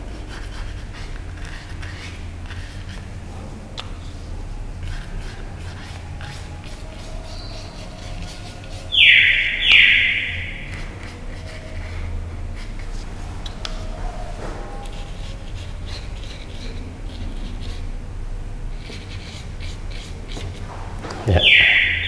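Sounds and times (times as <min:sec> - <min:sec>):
steady low hum: 0:00.0 - 0:22.0
bird squawking: 0:08.7 - 0:10.7, 0:21.3 - 0:22.0.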